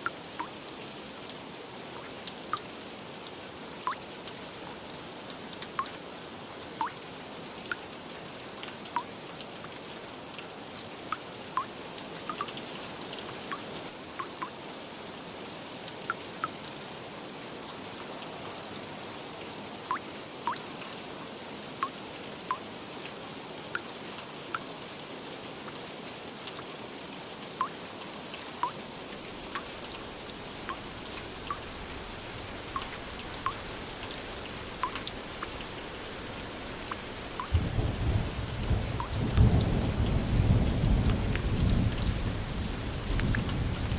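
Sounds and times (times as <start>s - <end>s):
steady rain: 0.0s - 43.9s
large raindrops plinking: 3.9s - 4.5s, 5.6s - 6.1s, 11.1s - 12.6s, 13.4s - 14.6s, 19.9s - 20.7s, 27.6s - 43.9s.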